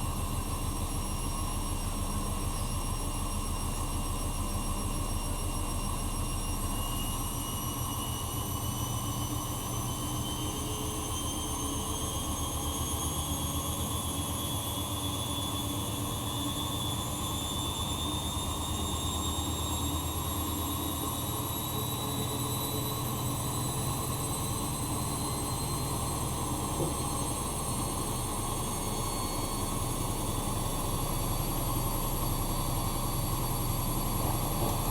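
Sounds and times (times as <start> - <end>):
washing machine motor whine: 0.0 - 34.9
pulsing rumble of turning drum: 22.5 - 34.9.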